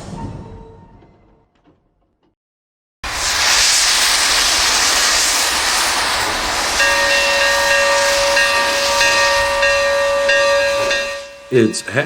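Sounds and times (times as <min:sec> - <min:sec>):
steam hissing: 0:03.0 - 0:11.2
steam whistle blast: 0:06.7 - 0:11.5.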